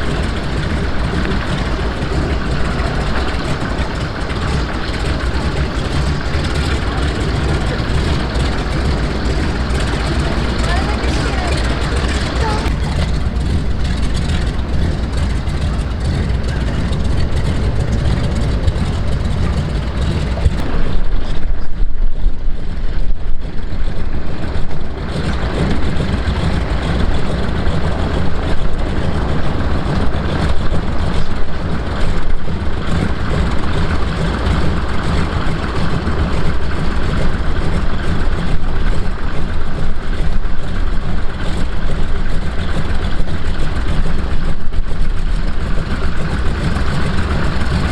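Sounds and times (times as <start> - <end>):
seaplane engine droning: 0.0 - 21.6, 22.6 - 47.9.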